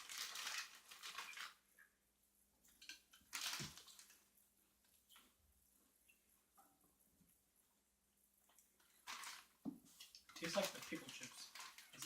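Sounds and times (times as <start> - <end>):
chip bag crackling: 0.0 - 1.5.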